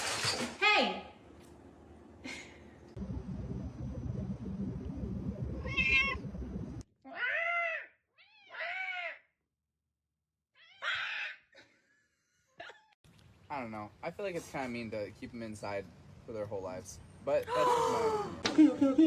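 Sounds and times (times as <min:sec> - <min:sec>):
low rumbling noise: 0:01.9 - 0:06.9.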